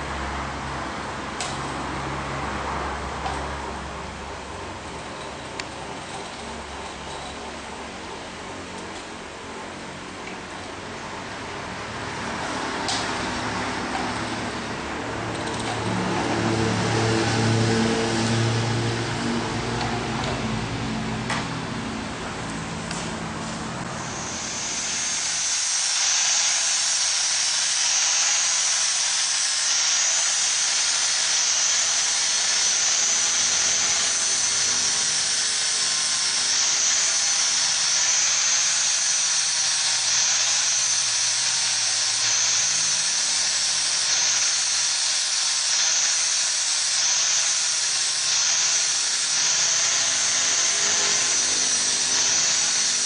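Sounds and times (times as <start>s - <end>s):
high-pitched hiss: 23.9s - 53.0s.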